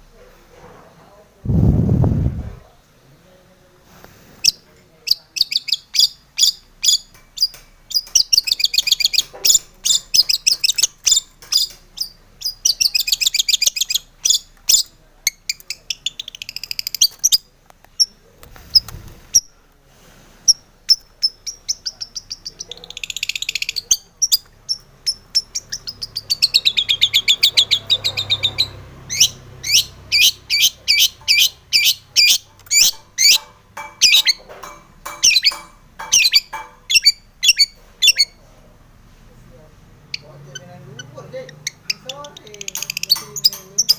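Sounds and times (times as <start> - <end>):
shrike singing chattering trills: 20.9 - 34.4, 40.1 - 43.9.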